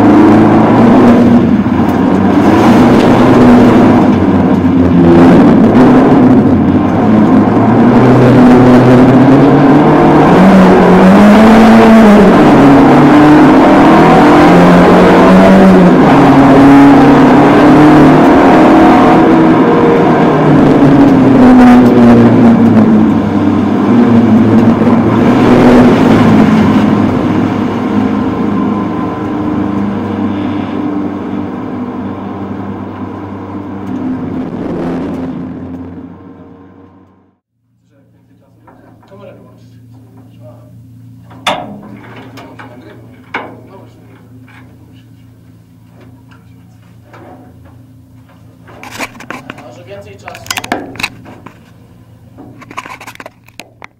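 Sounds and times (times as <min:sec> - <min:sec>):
rally car engine revving: 0:00.0 - 0:37.4.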